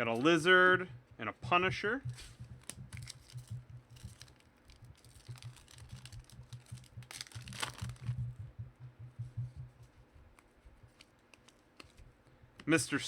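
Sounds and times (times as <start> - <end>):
low steady hum: 0.0 - 13.0
cards and packaging clicking: 2.1 - 8.2, 10.4 - 12.1
packaging crinkling: 2.1 - 8.3.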